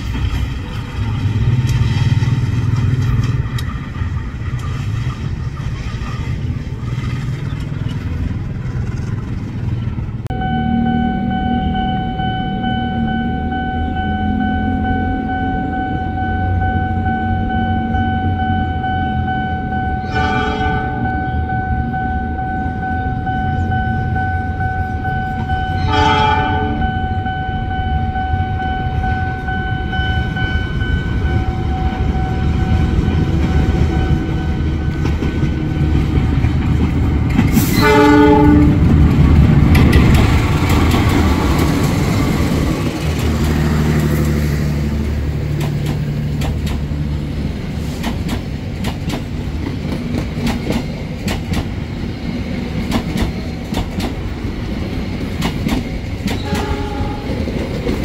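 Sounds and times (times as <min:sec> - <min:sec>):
wheels clicking over rail joints: 0:00.0 - 0:10.2, 0:29.4 - 0:58.0
locomotive engine running: 0:00.0 - 0:58.0
locomotive horn blasts: 0:10.3 - 0:36.0, 0:37.6 - 0:39.0, 0:56.4 - 0:57.4.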